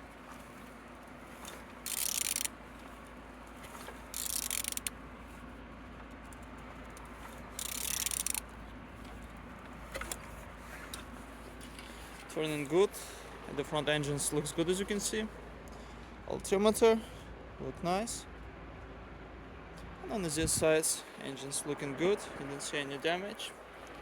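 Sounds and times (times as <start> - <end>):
engine turned by hand clicking: 0.0 - 12.8.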